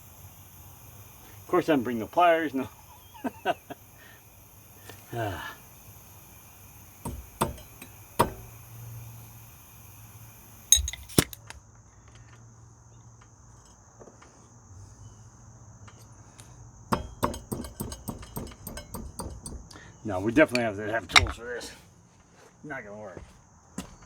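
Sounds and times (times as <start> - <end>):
crickets trilling: 0.0 - 24.0
metal tools clinking and knocking: 10.7 - 11.4, 20.5 - 21.4.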